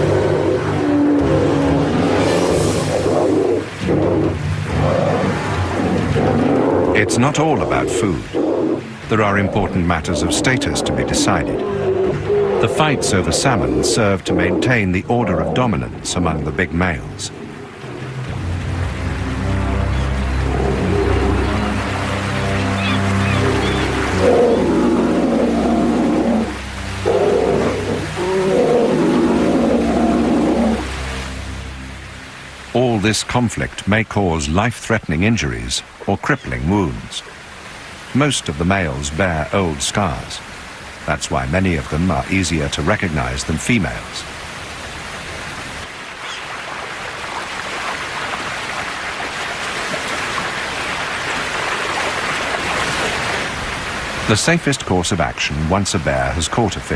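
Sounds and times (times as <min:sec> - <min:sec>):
bears roaring and growling: 0:00.0 - 0:18.8, 0:19.4 - 0:21.8, 0:23.3 - 0:30.9
river water pouring over falls: 0:00.0 - 0:56.9.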